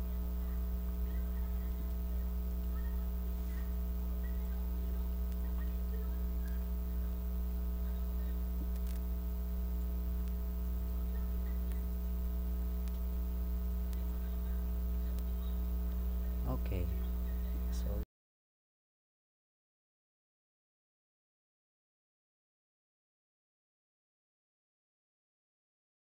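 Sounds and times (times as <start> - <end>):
electrical mains hum: 0.0 - 18.1.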